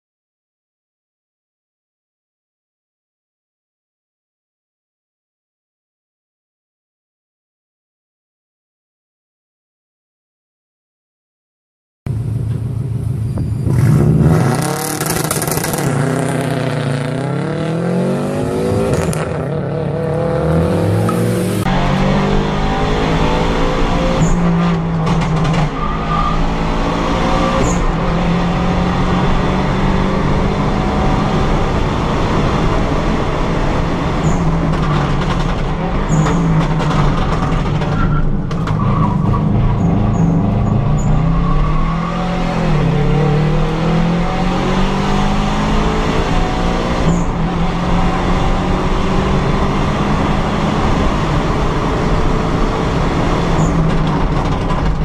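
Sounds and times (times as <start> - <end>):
car engine revving hard: 13.7 - 37.9, 39.2 - 54.6.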